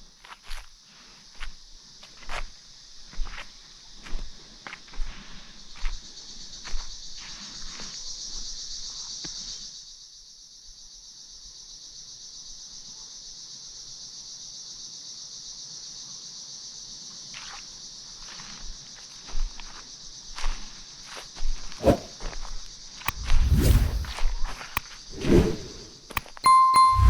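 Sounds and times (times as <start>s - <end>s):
insects chorus: 0.9s - 21.3s.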